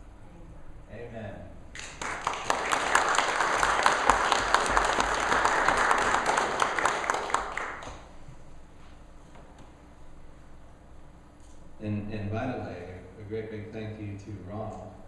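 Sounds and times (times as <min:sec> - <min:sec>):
crowd clapping: 0:01.7 - 0:08.1.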